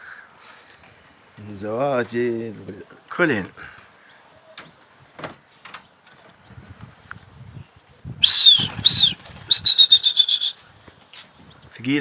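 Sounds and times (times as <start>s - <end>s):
pigeon wings flapping: 8.3s - 11.2s.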